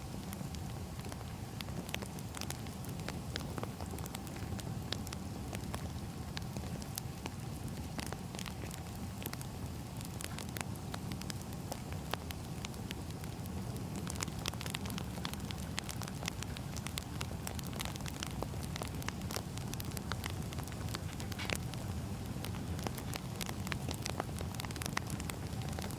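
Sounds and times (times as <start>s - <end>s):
fire crackling and popping: 0.0s - 25.9s.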